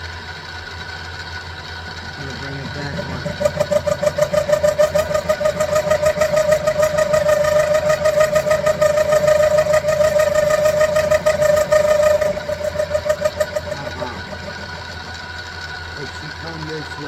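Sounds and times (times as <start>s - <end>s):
motor hum: 1.8s - 17.0s
milling cutter high-pitched tone: 2.2s - 15.4s.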